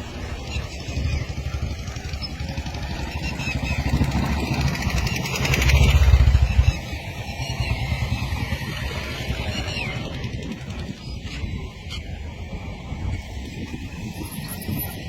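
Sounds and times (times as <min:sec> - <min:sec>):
small engine passing: 0:00.0 - 0:11.8.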